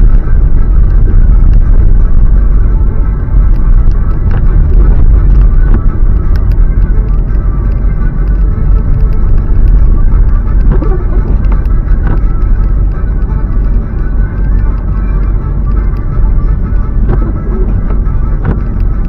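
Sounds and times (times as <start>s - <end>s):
tyres and engine rumble: 0.0s - 19.0s
faint clicks: 5.3s - 10.8s.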